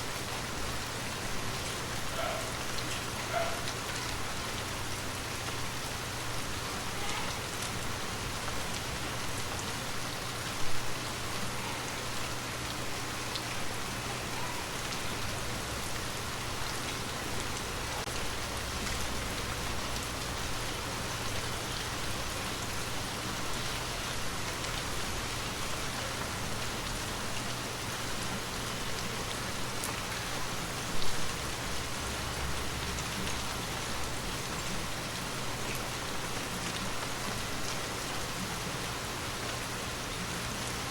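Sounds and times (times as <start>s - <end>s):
gentle rain pattering: 0.0s - 40.9s.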